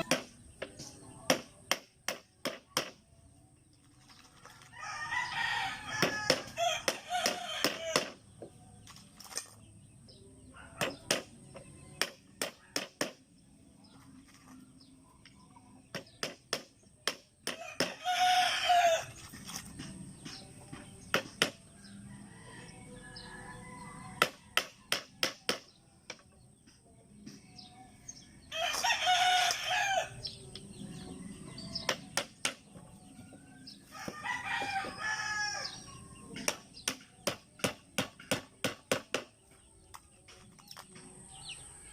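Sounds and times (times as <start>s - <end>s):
rooster crowing: 4.7s - 8.0s, 17.6s - 19.1s, 28.5s - 30.2s, 33.6s - 35.9s.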